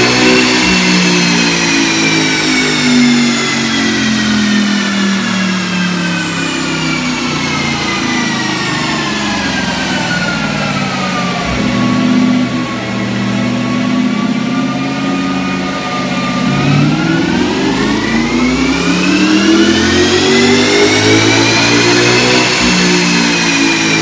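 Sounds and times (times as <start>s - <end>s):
car engine slowing down: 0.0s - 24.0s
high whine falling in pitch: 5.7s - 24.0s.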